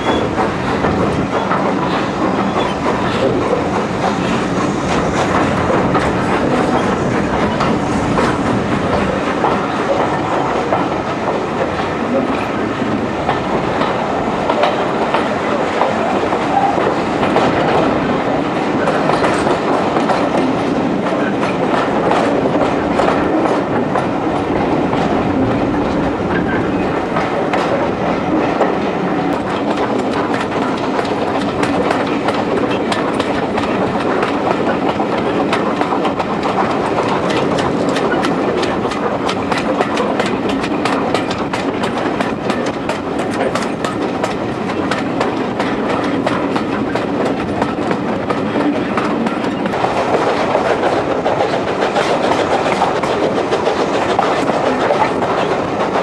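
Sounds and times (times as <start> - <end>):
clickety-clack over the track: 0.0 - 56.0
train wheels rumbling: 0.0 - 56.0.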